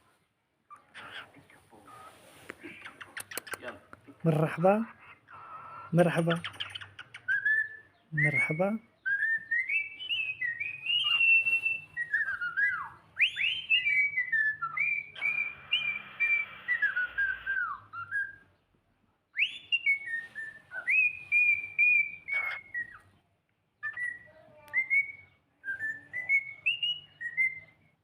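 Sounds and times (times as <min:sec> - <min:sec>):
cockatiel whistling: 0:05.3 - 0:18.6, 0:19.4 - 0:23.1, 0:23.8 - 0:27.9.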